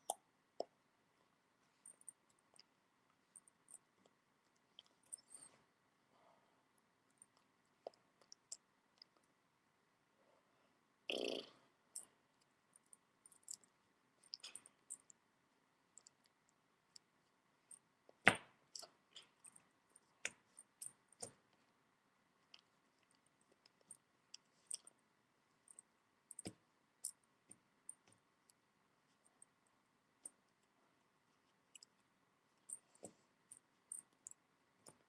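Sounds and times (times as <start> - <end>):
faint clicks and taps: 7.1 - 9.4, 15.9 - 21.8, 25.6 - 35.0.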